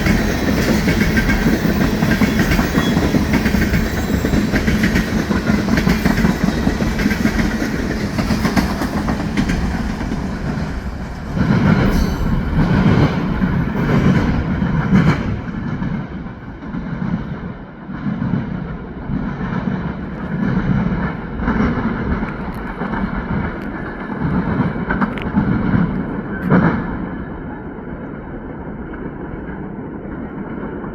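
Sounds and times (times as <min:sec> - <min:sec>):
steel wheels clattering over rails: 0:00.0 - 0:17.1
freight train rolling past: 0:00.0 - 0:30.9.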